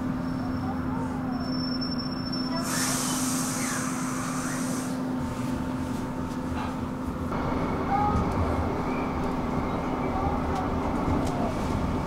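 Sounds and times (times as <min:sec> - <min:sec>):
train hum and rumble: 0:00.0 - 0:12.0
hiss: 0:02.6 - 0:05.1.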